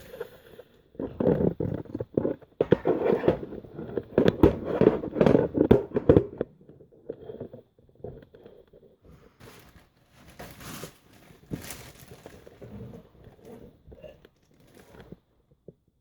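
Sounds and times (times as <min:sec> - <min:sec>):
objects clattering and clicking: 0:09.4 - 0:15.2.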